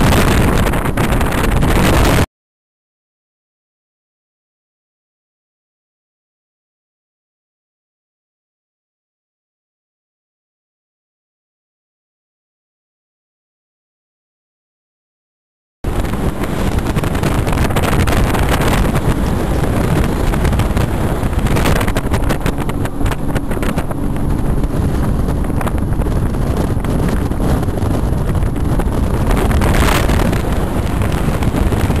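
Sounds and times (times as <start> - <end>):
speedboat engine running: 0.0 - 2.2, 15.9 - 32.0
wind buffeting microphone: 0.0 - 2.3, 15.9 - 32.0.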